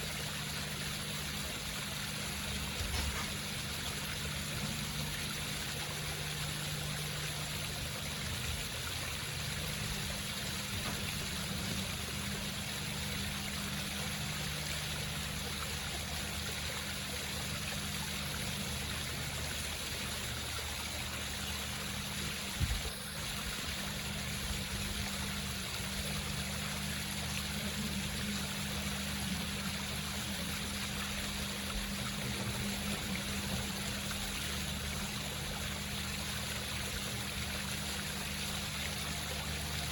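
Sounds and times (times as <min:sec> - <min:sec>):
low steady hum: 0:00.0 - 0:39.9
water splashing over rocks: 0:00.0 - 0:39.9.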